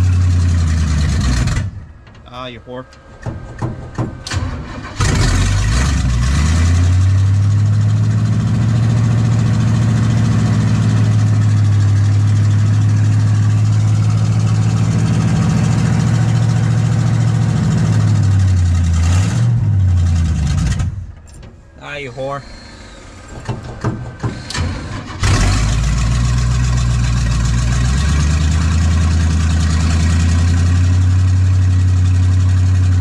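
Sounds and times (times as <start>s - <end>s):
engine cranking: 2.9s - 6.6s, 20.4s - 27.8s
engine fast idle: 21.9s - 32.7s.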